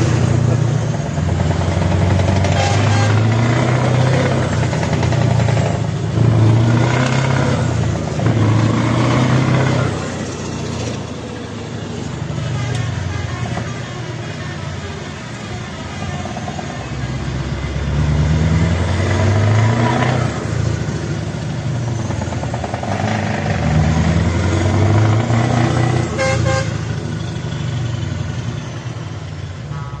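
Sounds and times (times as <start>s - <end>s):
truck engine under load: 0.0s - 30.0s
truck horn toot: 2.2s - 4.4s, 12.3s - 16.0s, 25.9s - 26.9s, 29.6s - 30.0s.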